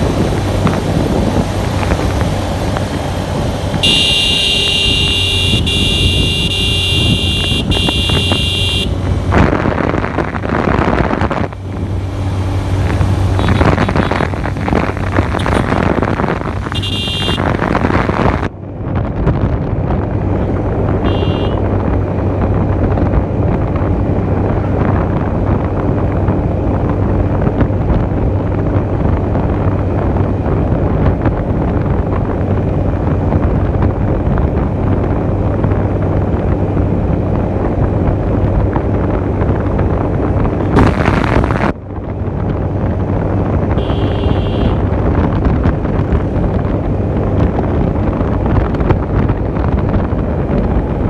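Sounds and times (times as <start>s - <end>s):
motorcycle engine hum: 0.0s - 51.0s
wind buffeting microphone: 0.0s - 51.0s
horn tone: 3.8s - 11.5s, 13.3s - 18.5s, 21.0s - 21.6s, 40.8s - 41.7s, 43.8s - 44.9s.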